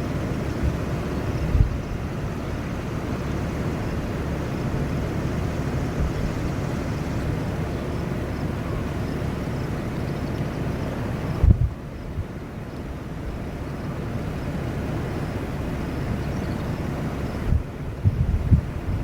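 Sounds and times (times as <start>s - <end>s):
low thumps from gusts: 0.0s - 8.3s, 11.4s - 12.4s, 17.4s - 19.0s
wind rumble on microphone: 0.0s - 19.0s.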